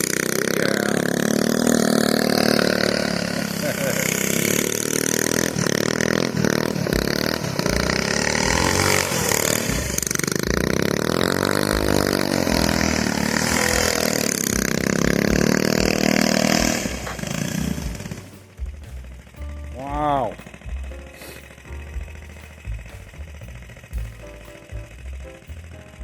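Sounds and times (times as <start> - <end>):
mini bike engine revving: 0.0 - 22.1, 23.6 - 24.0.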